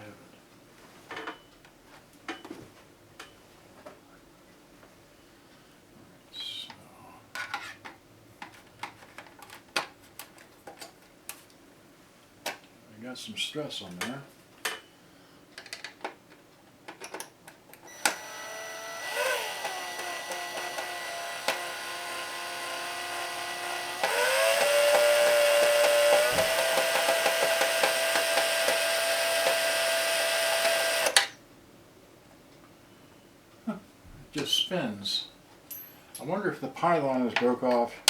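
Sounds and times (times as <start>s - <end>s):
power tool motor whining: 17.9s - 31.3s.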